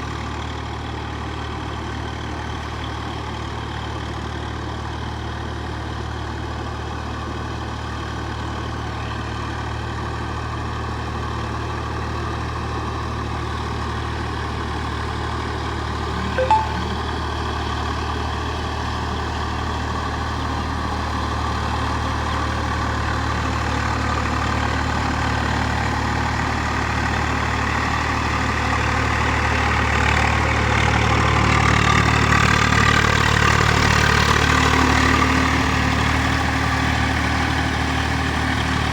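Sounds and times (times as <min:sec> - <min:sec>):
sharp high sound: 0:16.2 - 0:17.2
tractor diesel engine running: 0:17.4 - 0:38.9.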